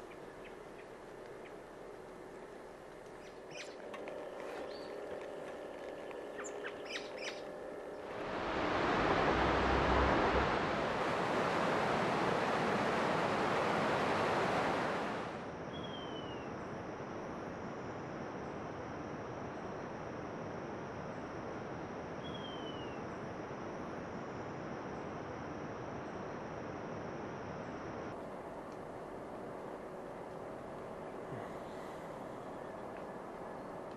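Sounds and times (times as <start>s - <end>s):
steady high hum: 0.0s - 33.9s
loud rushing water: 8.1s - 15.4s.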